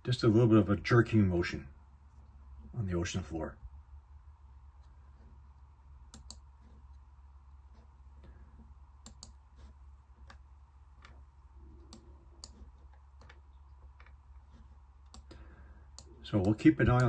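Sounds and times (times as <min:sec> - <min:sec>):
low steady hum: 0:00.0 - 0:17.0
computer clicking: 0:06.0 - 0:06.5, 0:09.0 - 0:17.0.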